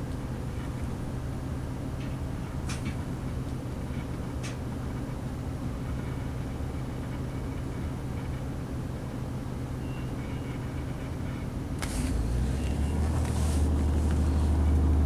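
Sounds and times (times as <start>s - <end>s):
train diesel engine hum: 0.0s - 15.0s
wheels on rail: 11.3s - 15.0s.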